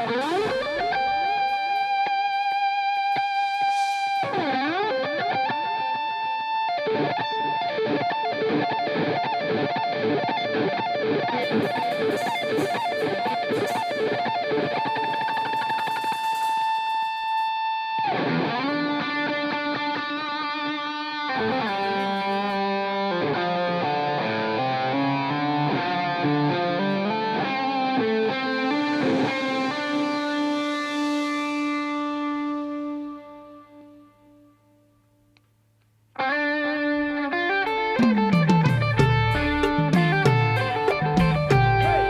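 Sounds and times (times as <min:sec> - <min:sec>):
lower accompanying notes: 0:00.0 - 0:06.6, 0:28.0 - 0:35.0, 0:37.6 - 0:42.0
distorted electric guitar solo: 0:00.0 - 0:35.0, 0:36.2 - 0:42.0.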